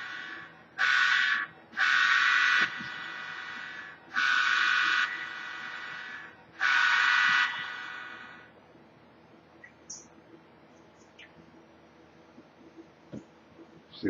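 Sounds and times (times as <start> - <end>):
buzzy electronic horn blasts: 0.0 - 8.2
quiet steady hum: 0.0 - 14.0.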